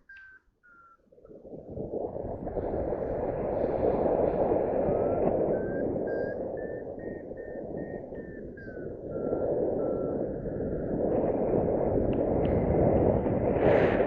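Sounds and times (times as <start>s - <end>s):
variometer beeping: 0.0s - 1.3s, 4.6s - 12.4s
wind rushing over microphone: 1.2s - 14.0s.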